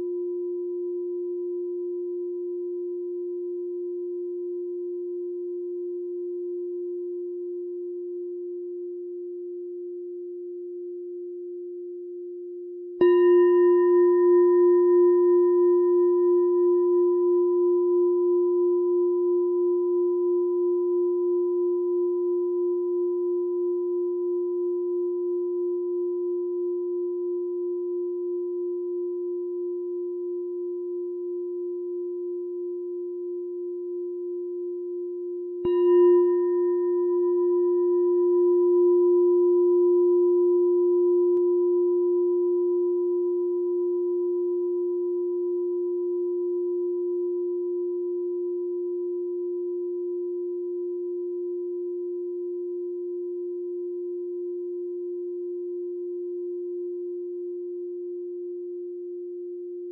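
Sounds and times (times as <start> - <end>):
meditation bell ringing: 13.0 - 58.4.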